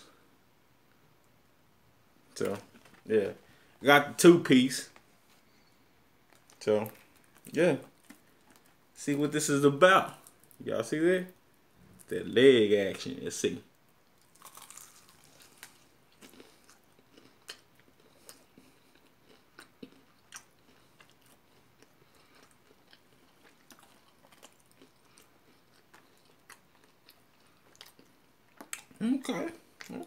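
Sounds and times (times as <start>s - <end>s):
person biting and chewing chicken: 14.2s - 28.9s.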